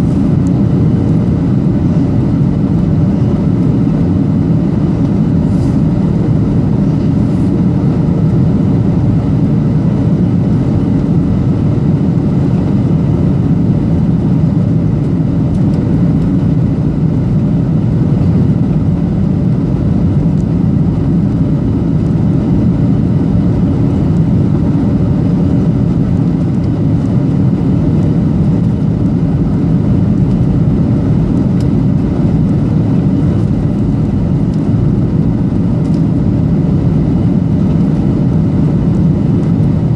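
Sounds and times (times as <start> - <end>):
aircraft cabin engine rumble: 0.0 - 39.9.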